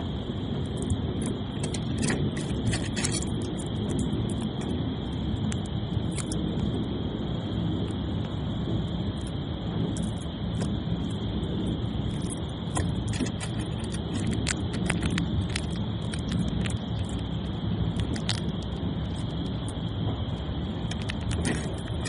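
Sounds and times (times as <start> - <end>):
low rumble: 0.0 - 22.0
squirrel cracking a nut: 12.1 - 17.2, 17.9 - 19.2, 20.8 - 22.0.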